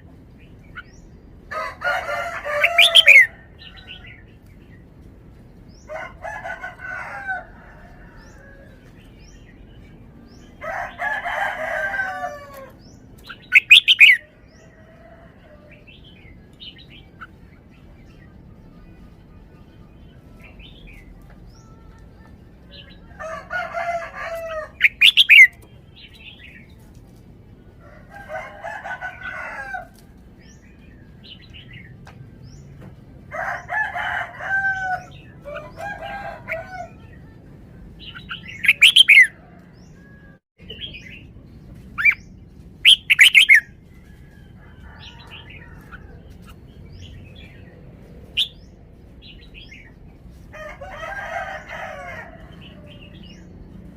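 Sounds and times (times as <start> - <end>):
bird warbling song: 2.0 - 4.8, 12.4 - 14.8, 24.2 - 26.8, 38.0 - 40.0, 40.6 - 43.7
sharp bird call notes: 13.5 - 14.2.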